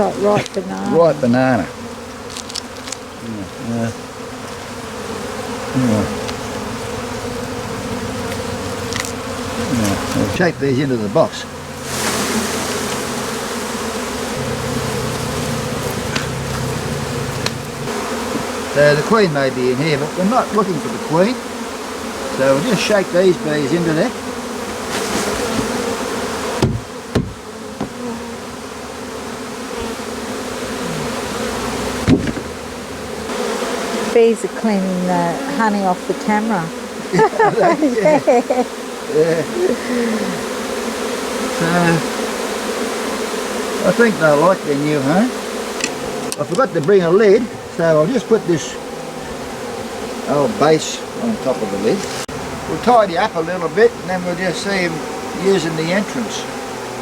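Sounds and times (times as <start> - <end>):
honeybees buzzing: 0.0 - 57.0
dull knocks: 14.4 - 18.5, 26.6 - 28.0, 32.0 - 32.6.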